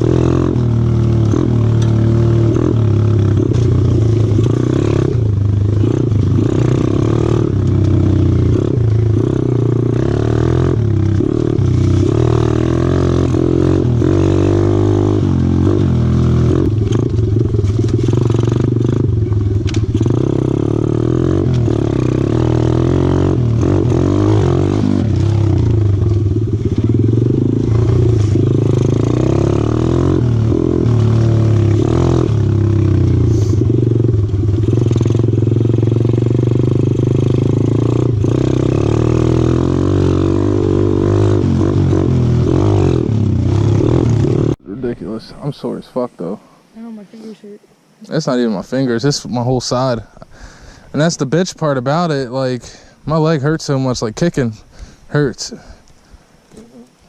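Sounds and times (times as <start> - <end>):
motorbike engine revving: 0.0 - 44.6.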